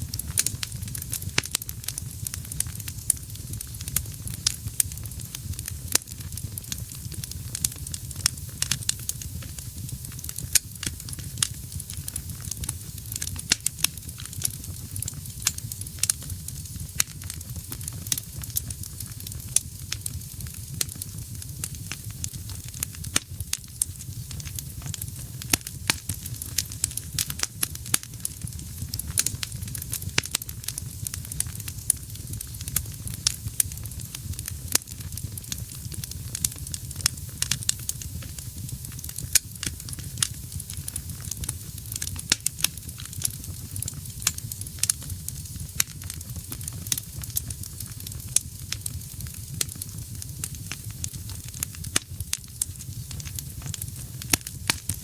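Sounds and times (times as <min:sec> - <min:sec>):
low rumble of flame: 0:00.0 - 0:55.0
wood fire crackling and popping: 0:00.0 - 0:55.0.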